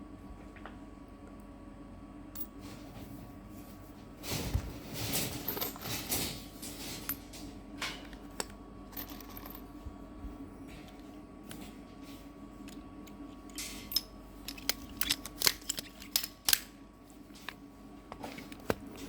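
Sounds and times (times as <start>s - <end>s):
steady hum: 0.0s - 19.0s
handling scraping and clattering: 2.4s - 9.7s.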